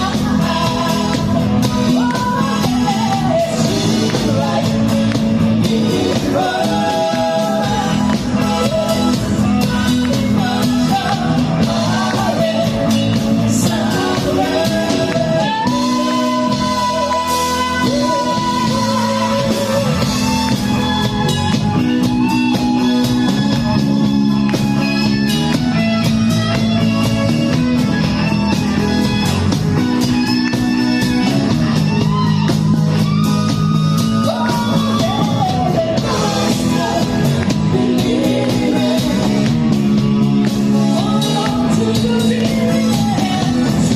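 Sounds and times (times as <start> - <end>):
person singing: 0.0 - 21.4, 32.0 - 43.9
bass and drums: 0.0 - 43.9
electric guitar: 0.0 - 43.9.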